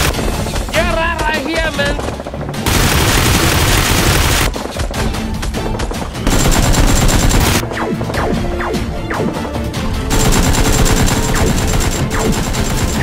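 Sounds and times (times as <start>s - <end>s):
background music: 0.0s - 13.0s
automatic gunfire: 2.0s - 4.8s, 6.2s - 7.6s, 10.1s - 13.0s.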